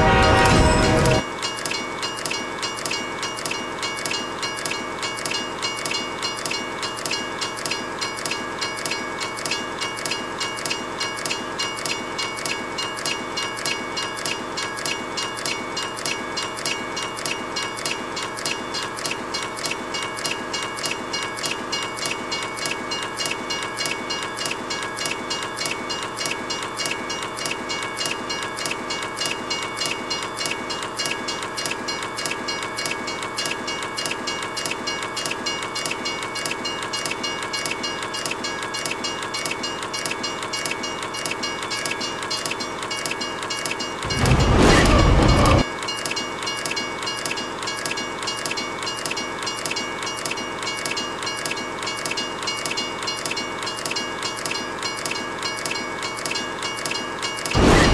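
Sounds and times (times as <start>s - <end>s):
loud deep horn blast: 0.0s - 1.2s, 44.1s - 45.6s
steady high tones: 0.0s - 1.2s
train wheels clattering on rails: 0.0s - 57.9s.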